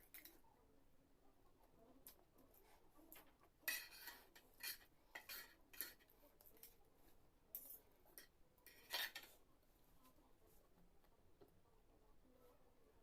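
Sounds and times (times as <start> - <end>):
utensils clinking against dish: 3.7 - 6.8, 7.6 - 9.4.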